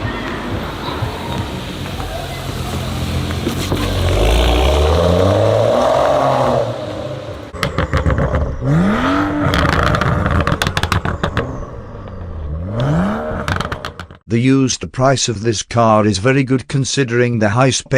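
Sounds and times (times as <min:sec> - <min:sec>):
car exhaust revving: 0:00.0 - 0:14.2
exhaust pops and crackles: 0:00.2 - 0:06.7, 0:07.3 - 0:14.3.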